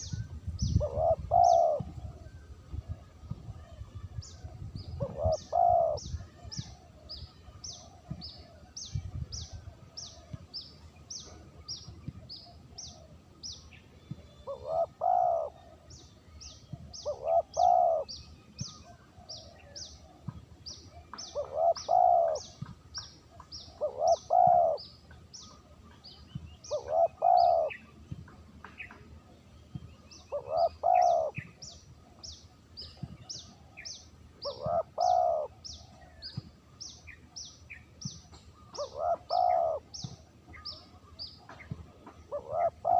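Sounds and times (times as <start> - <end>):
dove cooing: 0.0 - 3.1, 4.9 - 7.1, 14.3 - 15.9, 16.8 - 20.2, 20.9 - 22.6, 23.6 - 24.9, 26.7 - 27.9, 30.2 - 31.6, 34.4 - 36.0, 38.6 - 40.2, 41.4 - 42.9.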